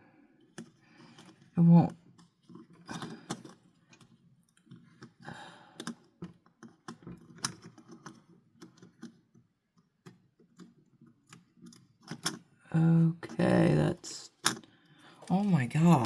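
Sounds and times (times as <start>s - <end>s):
small clicks and taps of toy parts: 0.4s - 5.2s, 5.8s - 12.6s, 14.4s - 15.0s
faint rubbing and handling noise: 15.0s - 16.0s.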